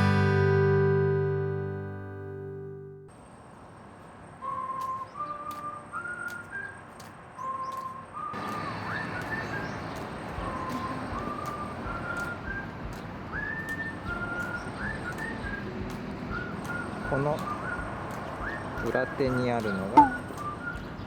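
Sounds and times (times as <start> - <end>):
person whistling a tune: 4.4 - 6.8, 7.4 - 9.8, 10.4 - 21.0.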